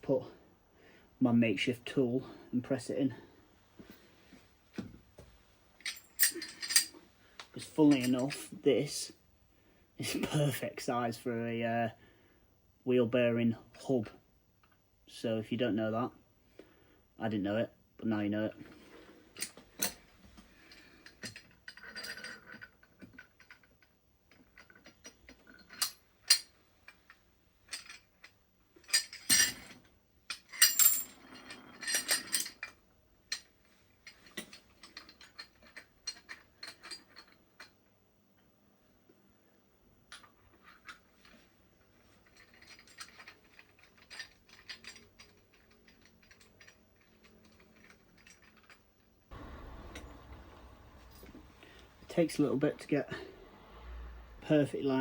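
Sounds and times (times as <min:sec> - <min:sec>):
metal clinks and rattles: 0:05.8 - 0:07.0, 0:07.6 - 0:08.5, 0:18.6 - 0:37.8, 0:40.1 - 0:52.1
metal clanks: 0:49.3 - 0:53.5
metal scraping: 0:49.3 - 0:54.8.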